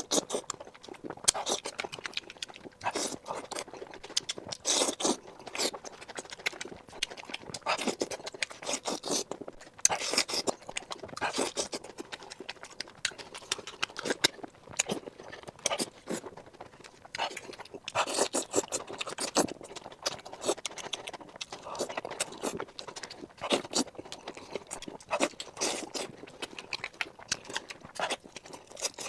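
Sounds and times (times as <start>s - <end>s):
crunchy food being chewed: 0.0s - 29.0s.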